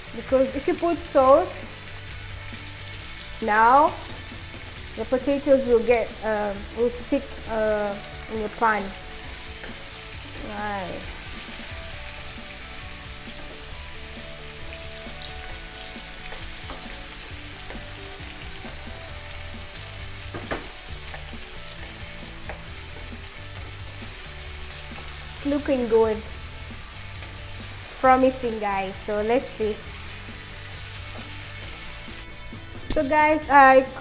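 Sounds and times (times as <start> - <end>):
vegetables sizzling in a frying pan: 0.0 - 34.0
wooden spatula knocking on pan: 20.2 - 21.3.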